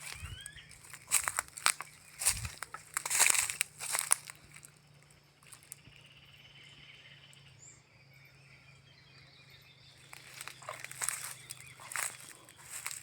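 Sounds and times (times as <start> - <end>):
crunching sounds: 0.0 - 4.7, 10.0 - 13.0
high insect trill: 0.0 - 8.1, 9.9 - 13.0
bird chirp: 0.0 - 13.0.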